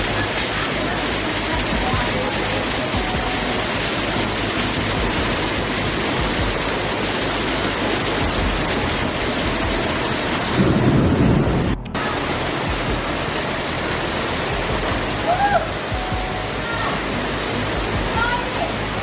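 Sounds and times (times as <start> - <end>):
rain: 0.0 - 19.0
strong wind: 4.8 - 13.2.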